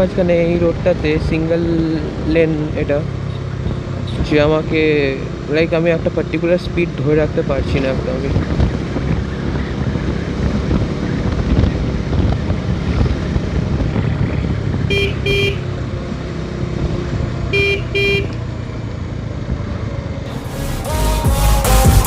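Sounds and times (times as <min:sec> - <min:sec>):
wind and road noise: 0:00.0 - 0:20.8
vehicle horn beeps: 0:14.9 - 0:15.6, 0:17.5 - 0:18.4.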